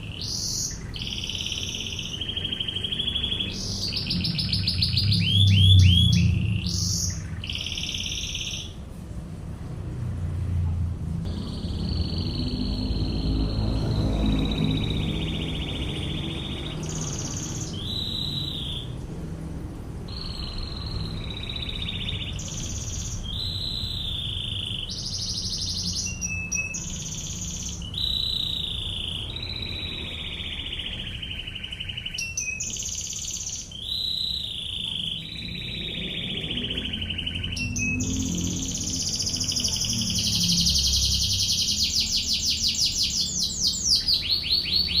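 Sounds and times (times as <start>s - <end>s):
canary singing: 0.0s - 9.0s, 11.3s - 19.2s, 20.0s - 45.0s
low steady rumble: 8.7s - 16.8s.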